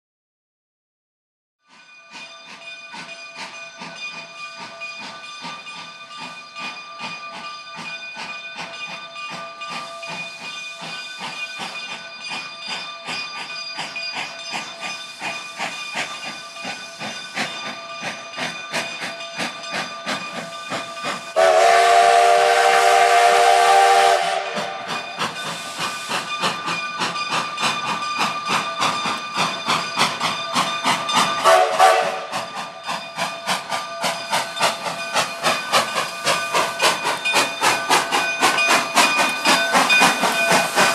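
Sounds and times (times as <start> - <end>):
steam locomotive chuffing: 1.7 - 40.9
steam whistle blast: 21.4 - 24.9, 31.4 - 32.4.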